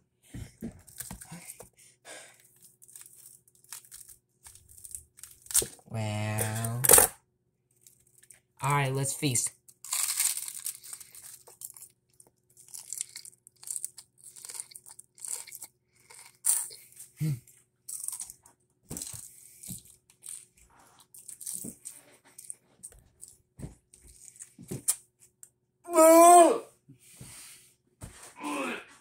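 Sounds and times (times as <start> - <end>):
person crunching lettuce: 0.8 - 1.6, 2.3 - 7.0, 9.7 - 23.4, 24.0 - 25.0
person groaning: 17.2 - 17.4, 25.9 - 26.7, 28.4 - 29.0.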